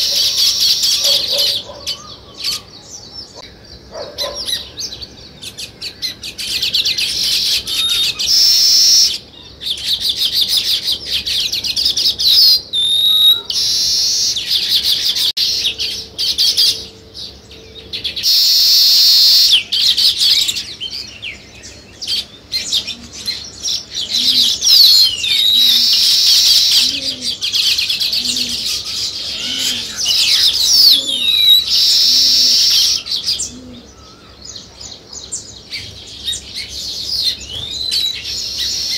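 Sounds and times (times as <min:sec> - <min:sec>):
weaver birds chattering: 0:00.0 - 0:38.9
gliding whistled bird notes: 0:04.3 - 0:34.6.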